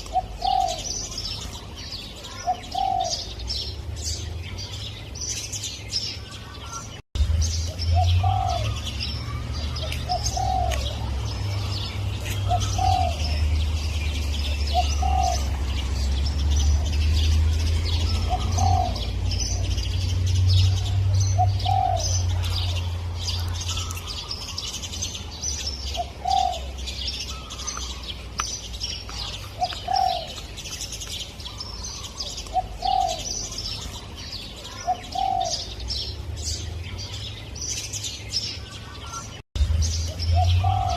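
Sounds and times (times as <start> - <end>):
dove cooing: 0.0 - 1.4, 2.2 - 3.3, 7.9 - 13.6, 14.4 - 17.0, 17.6 - 19.9, 20.6 - 23.9, 25.9 - 28.0, 29.2 - 30.4, 31.6 - 33.9, 34.7 - 35.8, 40.4 - 40.9
small birds chirping: 0.0 - 40.9
low rumble: 39.6 - 40.9.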